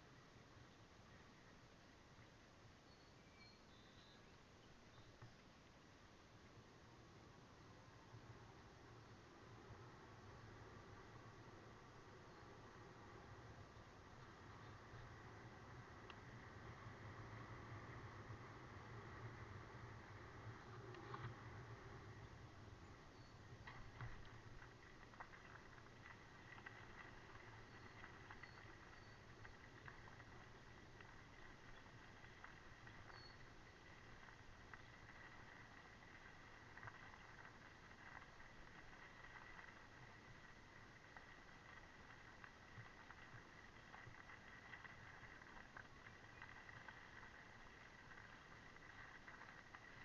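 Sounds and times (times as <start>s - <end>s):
faint hiss: 0.0s - 50.0s
low steady hum: 0.0s - 50.0s
faint ticks and clicks: 3.4s - 50.0s
light ticks: 16.0s - 16.3s, 20.7s - 21.4s.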